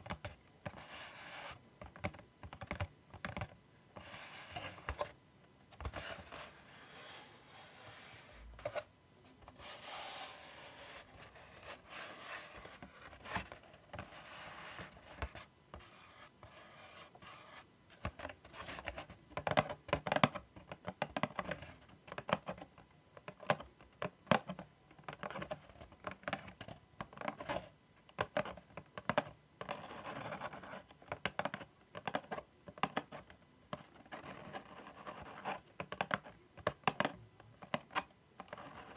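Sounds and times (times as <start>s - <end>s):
scratching and rubbing on surface: 0.7s - 1.6s, 5.8s - 17.7s, 33.9s - 35.6s, 38.5s - 38.9s.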